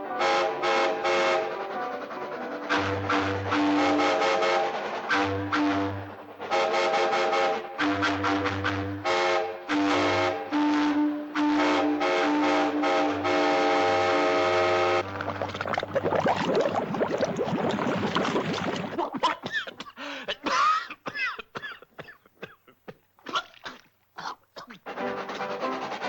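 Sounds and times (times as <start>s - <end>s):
train whistle blasts: 0.0s - 15.0s.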